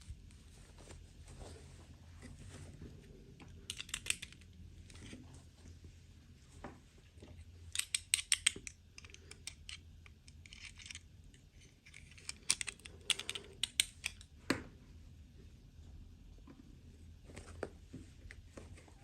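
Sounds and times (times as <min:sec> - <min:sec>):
plastic toy parts clicking: 0:03.7 - 0:04.5, 0:07.7 - 0:11.1, 0:11.8 - 0:14.3.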